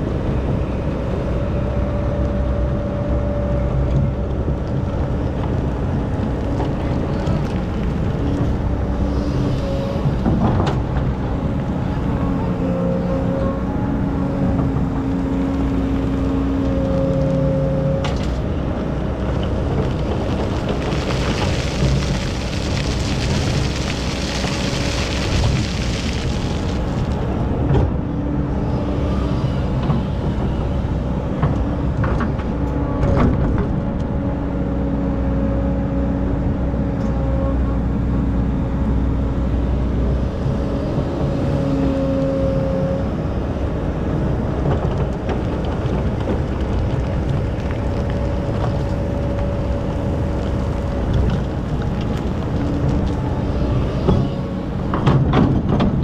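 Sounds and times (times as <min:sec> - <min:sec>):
excavator diesel engine running: 0:00.0 - 0:35.4.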